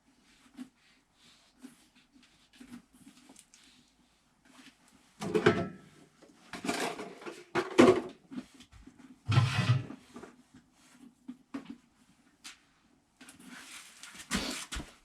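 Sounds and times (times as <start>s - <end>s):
objects clattering and scraping: 5.2s - 10.4s.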